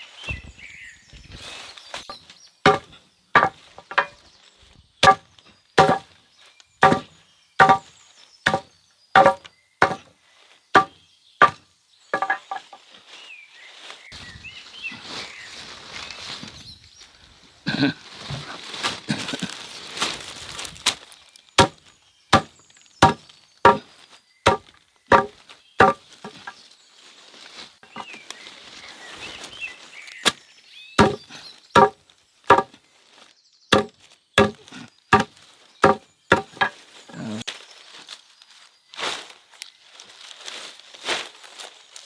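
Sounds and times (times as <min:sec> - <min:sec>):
hand tool chopping: 0:02.7 - 0:04.2, 0:05.0 - 0:05.2, 0:05.8 - 0:06.1, 0:06.8 - 0:07.9, 0:08.5 - 0:10.1, 0:10.8 - 0:11.6, 0:12.2 - 0:12.6, 0:22.4 - 0:23.9, 0:24.5 - 0:26.6, 0:31.0 - 0:32.7, 0:33.7 - 0:36.7
rustling: 0:18.0 - 0:21.8, 0:24.5 - 0:30.4.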